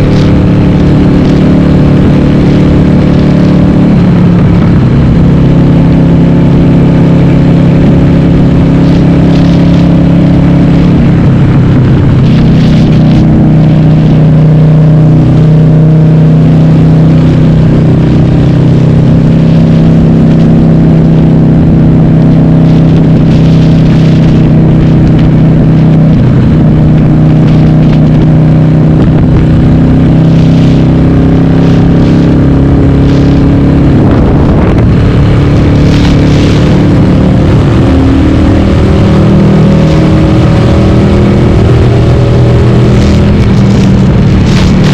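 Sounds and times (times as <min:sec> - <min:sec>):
motorcycle engine running loud: 0:00.0 - 0:44.9.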